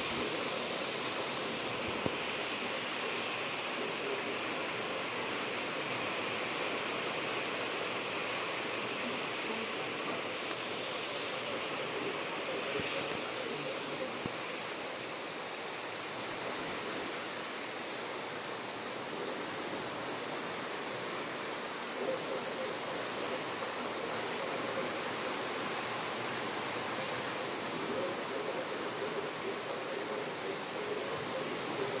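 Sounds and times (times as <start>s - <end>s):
sea surf rushing: 0.0s - 32.0s.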